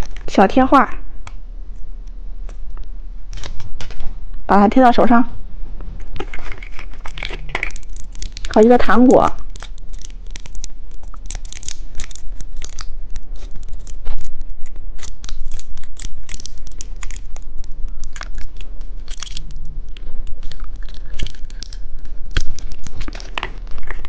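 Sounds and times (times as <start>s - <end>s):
plastic packaging crackling: 6.1s - 24.0s.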